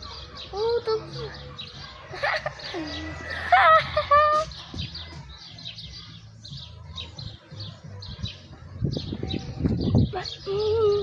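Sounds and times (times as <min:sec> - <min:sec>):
low rumbles on microphone: 0:06.4 - 0:11.0.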